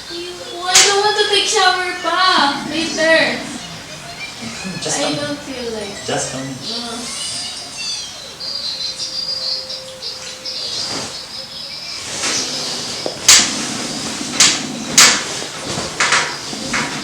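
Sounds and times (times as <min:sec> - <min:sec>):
insects trilling: 0:00.0 - 0:17.0
sharp loud clacks: 0:13.2 - 0:16.9.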